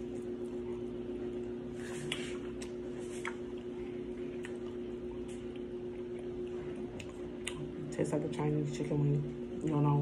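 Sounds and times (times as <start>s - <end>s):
chewing crunchy chicken: 0.0s - 7.9s.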